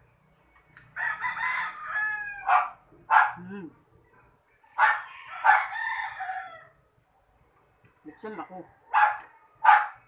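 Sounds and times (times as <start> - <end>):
rooster crowing: 1.0 - 2.7, 4.8 - 6.8
dog barking: 2.4 - 3.5, 4.8 - 5.7, 8.9 - 10.0.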